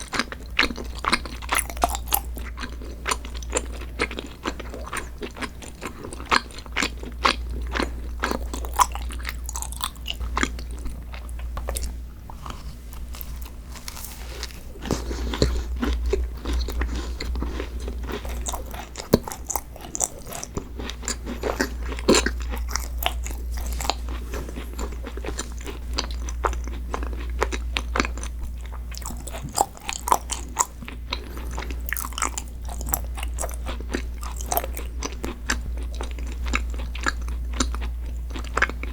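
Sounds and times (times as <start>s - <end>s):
crunching and chewing: 0.0s - 38.9s
steady low hum: 0.0s - 38.9s.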